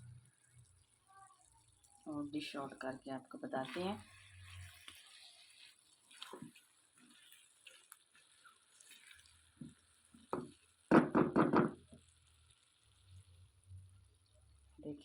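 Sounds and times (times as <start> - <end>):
spoon scooping wet curry: 3.6 - 10.8.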